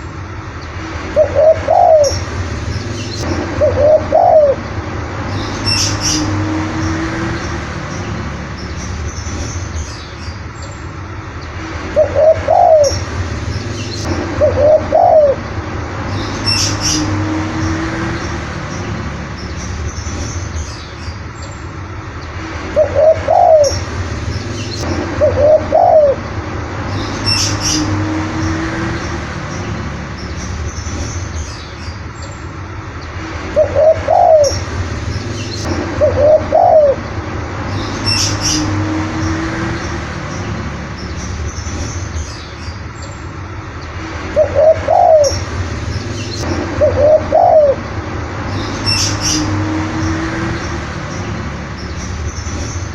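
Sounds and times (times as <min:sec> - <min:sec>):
dove cooing: 0:01.2 - 0:02.2, 0:03.6 - 0:04.6, 0:12.0 - 0:13.0, 0:14.4 - 0:15.4, 0:22.8 - 0:23.8, 0:25.2 - 0:26.2, 0:33.6 - 0:34.6, 0:36.0 - 0:37.0, 0:44.4 - 0:45.4, 0:46.8 - 0:47.8
high bird chirps: 0:01.2 - 0:10.8, 0:16.1 - 0:17.2, 0:22.8 - 0:28.0, 0:37.7 - 0:43.2, 0:44.4 - 0:52.9.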